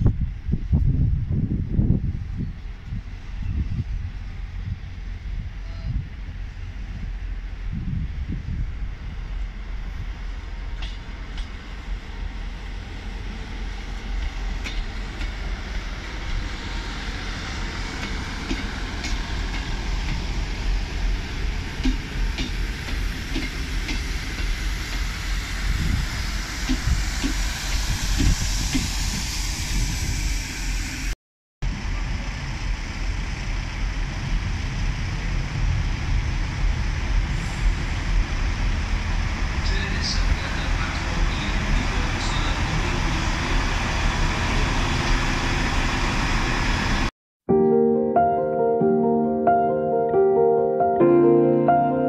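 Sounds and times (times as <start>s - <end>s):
wind rumble on microphone: 0.0s - 12.3s, 25.1s - 31.0s, 31.6s - 45.3s
diesel train rolling in: 0.0s - 47.1s
train hiss: 9.2s - 31.2s, 36.3s - 47.0s.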